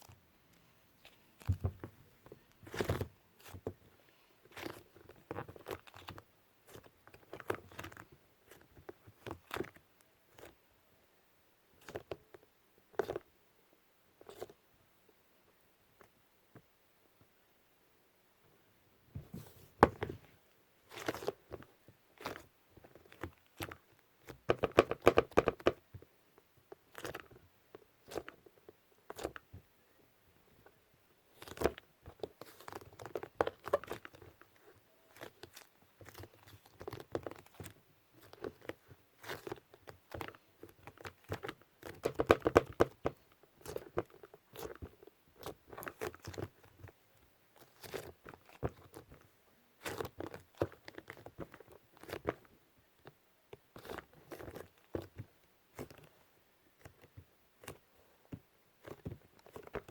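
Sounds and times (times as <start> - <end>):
foam clay crackling and tearing: 4.5 - 10.6, 31.3 - 34.5, 35.1 - 46.9, 47.6 - 49.2, 49.8 - 52.4.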